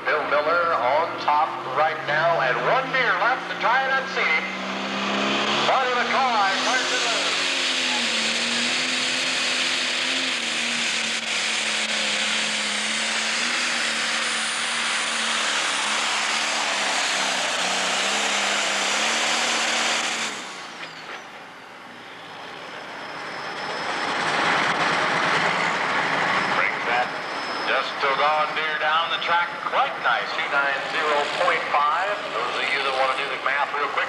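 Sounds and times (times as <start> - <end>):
tractor diesel engine at full power: 0.0 - 34.0
rising wash of noise: 4.1 - 20.6.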